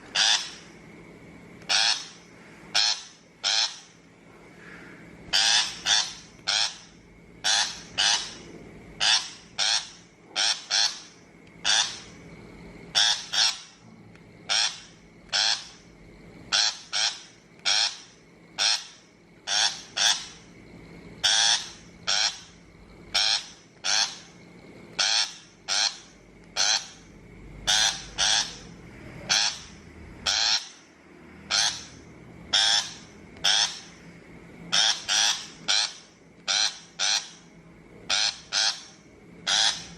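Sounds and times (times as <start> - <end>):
shrike harsh rasping calls: 0.1 - 0.8, 1.7 - 12.2, 12.9 - 13.8, 14.4 - 20.6, 21.2 - 34.1, 34.7 - 39.9.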